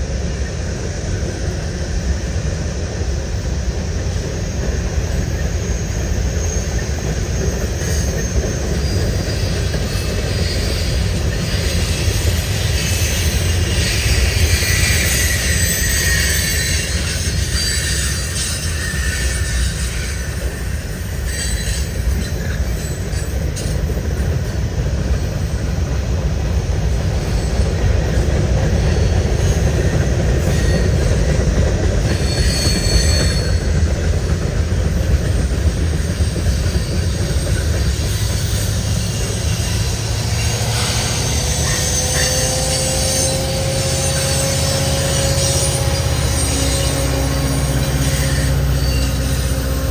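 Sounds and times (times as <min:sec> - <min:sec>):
train wheels rumbling on rail: 0:00.0 - 0:49.9
high wheel squeals: 0:04.4 - 0:25.9, 0:26.8 - 0:49.9
locomotive engine tone: 0:24.2 - 0:49.9.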